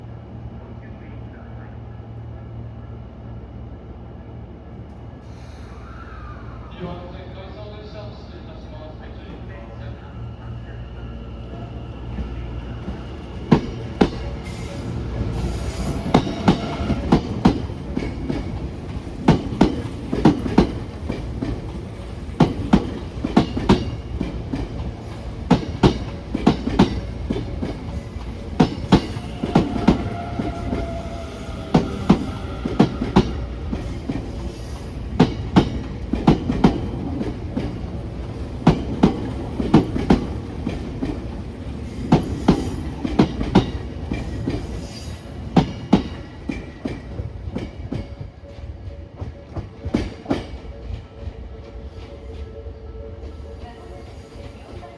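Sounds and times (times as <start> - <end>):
train running rumble: 11.4 - 54.9
train wheels clicking over rail joints: 12.8 - 31.0, 31.6 - 51.4.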